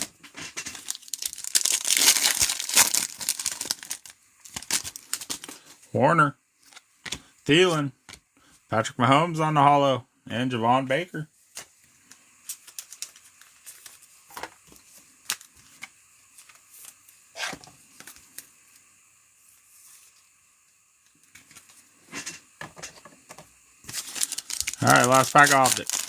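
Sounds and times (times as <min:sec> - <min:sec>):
foil wrappers crinkling and tearing: 0:00.0 - 0:05.7, 0:12.5 - 0:14.1, 0:23.8 - 0:26.0.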